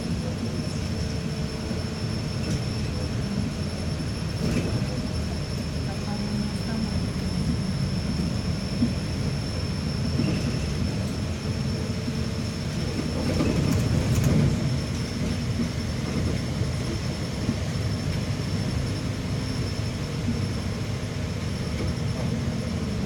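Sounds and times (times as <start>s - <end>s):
bus engine and road rumble: 0.0s - 23.0s.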